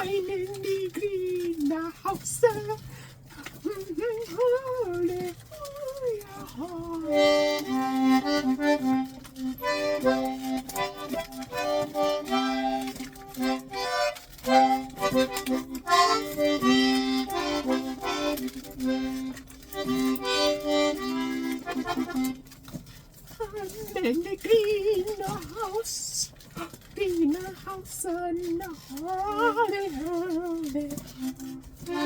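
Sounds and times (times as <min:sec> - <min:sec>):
accordion playing a melody: 0:03.4 - 0:24.4, 0:29.9 - 0:32.0.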